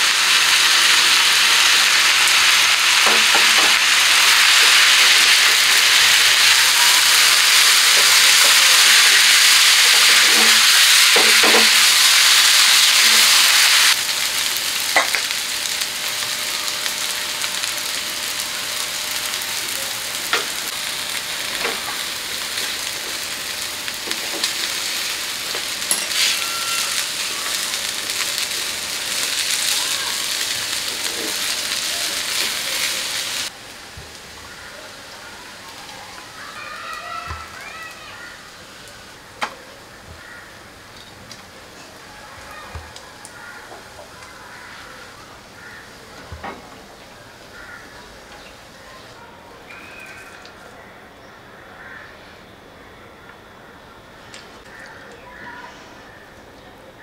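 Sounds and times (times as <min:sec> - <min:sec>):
food sizzling in a pan: 0:00.0 - 0:46.3.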